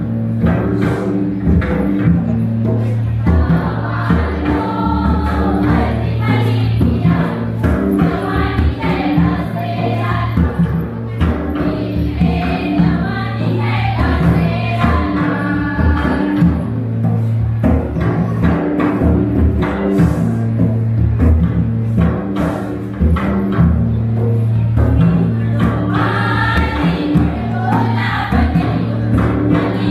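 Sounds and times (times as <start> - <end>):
drums: 0.0 - 29.9
group of voices singing: 2.8 - 17.2, 25.1 - 29.9.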